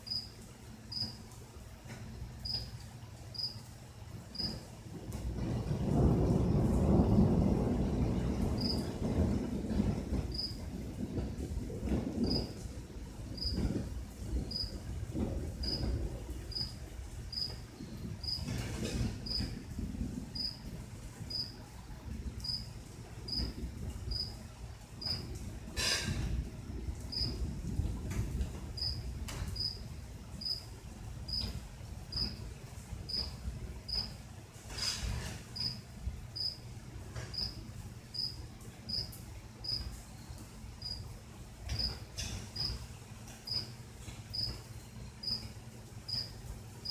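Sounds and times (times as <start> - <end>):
cricket chirping: 0.0 - 1.2, 2.4 - 2.7, 3.3 - 3.6, 4.3 - 4.6, 8.6 - 8.9, 10.3 - 10.6, 12.2 - 12.6, 13.4 - 13.7, 14.5 - 14.7, 15.6 - 15.9, 16.5 - 17.6, 18.2 - 18.4, 19.3 - 19.5, 20.4 - 20.6, 21.3 - 21.5, 22.4 - 22.7, 23.3 - 23.5, 24.1 - 24.3, 25.0 - 25.2, 27.1 - 27.4, 28.8 - 29.0, 29.6 - 29.8, 30.4 - 30.7, 31.3 - 31.5, 32.1 - 32.4, 33.1 - 33.3, 33.9 - 34.1, 35.6 - 35.8, 36.4 - 36.6, 37.3 - 39.9, 40.8 - 41.0, 41.7 - 42.0, 42.6 - 42.8, 43.5 - 43.7, 44.3 - 44.6, 45.2 - 45.5, 46.1 - 46.9.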